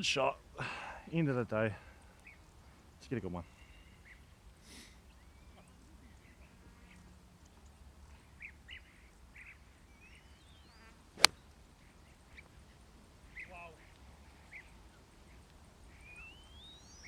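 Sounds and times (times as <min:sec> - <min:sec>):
birds chirping: 0:00.0 - 0:17.0
golf club striking ball: 0:11.2 - 0:11.4.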